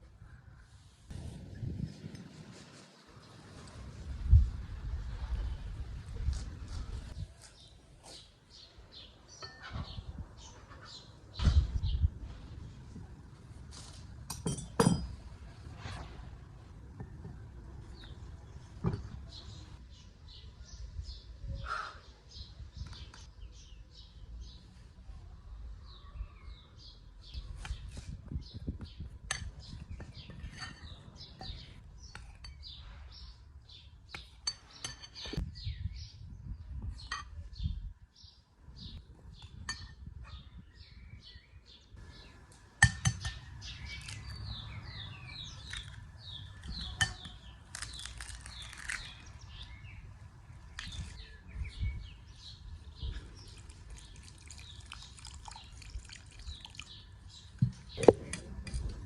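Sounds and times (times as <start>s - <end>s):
small birds chirping: 4.6s - 13.1s, 15.7s - 59.0s
cookware and utensils clinking: 14.3s - 15.2s.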